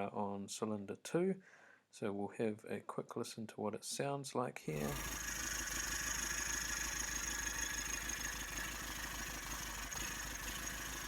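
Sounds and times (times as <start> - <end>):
diesel engine idling rough: 4.8 - 11.0.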